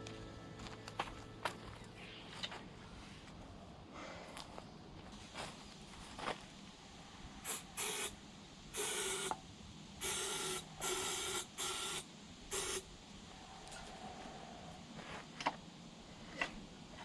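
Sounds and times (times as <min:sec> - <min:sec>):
aerosol spray can hissing: 0:07.4 - 0:08.2, 0:08.8 - 0:09.4, 0:10.0 - 0:12.8.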